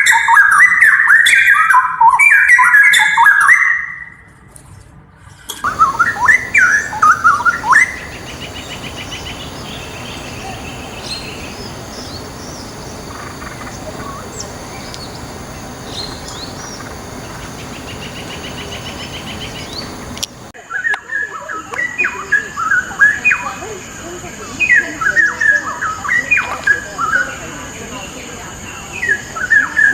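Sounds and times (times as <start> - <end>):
bird singing bubbling warble: 5.6 - 20.5
rapid high bird trill: 5.6 - 20.5
small birds calling: 5.6 - 20.5.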